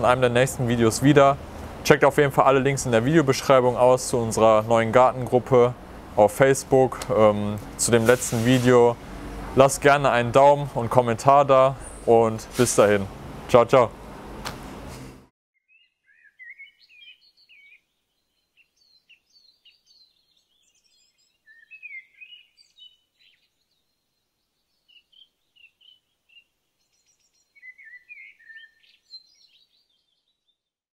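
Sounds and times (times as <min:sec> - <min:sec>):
faint songbird singing: 0:15.6 - 0:30.8.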